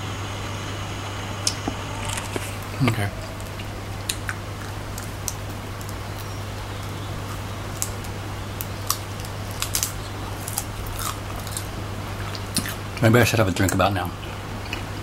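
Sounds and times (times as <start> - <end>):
steady low hum: 0.0 - 15.0
crunching and chewing crispy food: 3.5 - 15.0.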